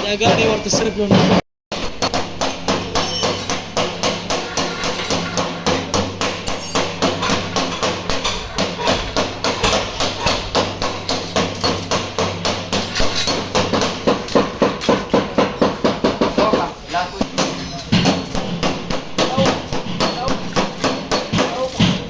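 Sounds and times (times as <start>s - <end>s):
hammer beating sheet metal: 0.0s - 22.0s.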